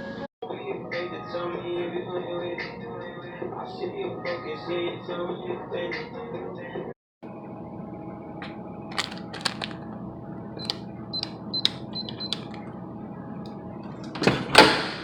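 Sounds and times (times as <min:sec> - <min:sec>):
steady background hum: 0:07.2 - 0:15.0
keypad clicks: 0:08.9 - 0:09.8, 0:10.6 - 0:12.7.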